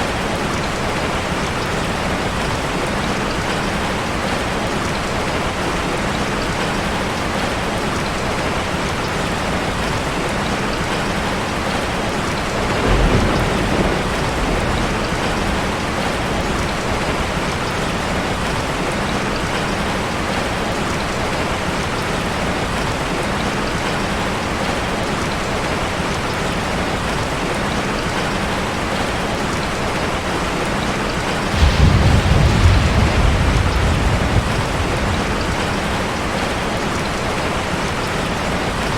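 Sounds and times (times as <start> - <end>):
heavy rain on a car roof: 0.0 - 38.9
thunder rumbling: 12.4 - 18.2, 31.5 - 37.1.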